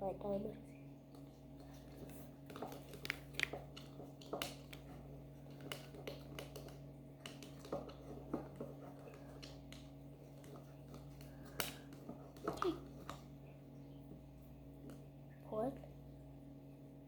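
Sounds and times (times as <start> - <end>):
light clicks and taps: 1.1 - 13.3.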